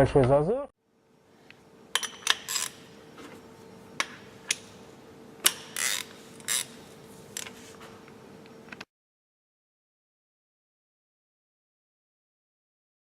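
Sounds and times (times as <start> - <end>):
faint steady hum: 0.0 - 8.9.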